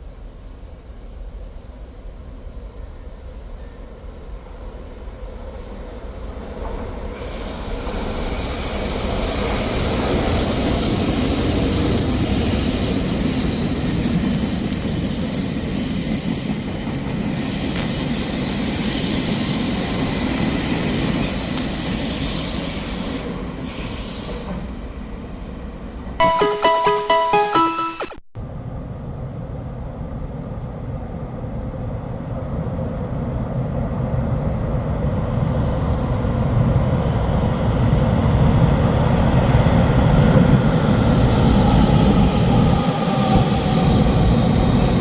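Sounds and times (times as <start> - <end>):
train wheels rumbling on rail: 0.0 - 26.2
high wheel squeal: 7.2 - 23.2.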